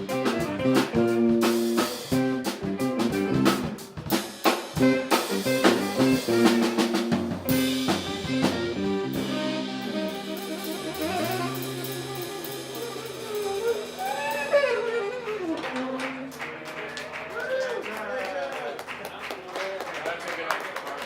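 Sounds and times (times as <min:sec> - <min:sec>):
wavering saxophone line: 0:00.0 - 0:03.8, 0:04.8 - 0:16.8
live band playing: 0:00.0 - 0:17.6.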